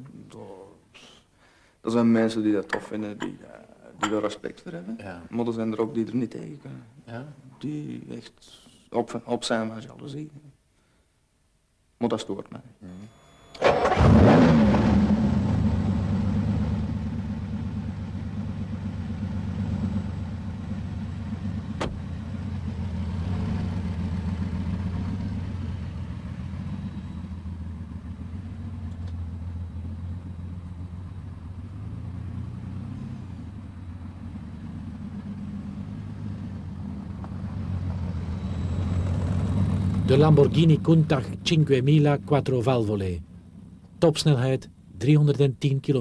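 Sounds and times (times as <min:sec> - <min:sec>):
car engine starting and running: 0:13.1 - 0:46.0.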